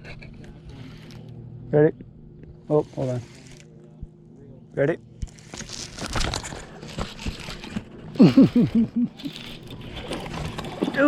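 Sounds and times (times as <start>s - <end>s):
laugh-like voice sounds: 8.2s - 9.5s.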